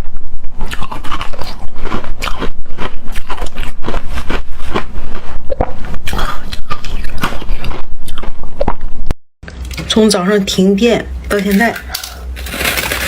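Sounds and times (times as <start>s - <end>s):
person chewing crunchy ice: 0.5s - 8.8s.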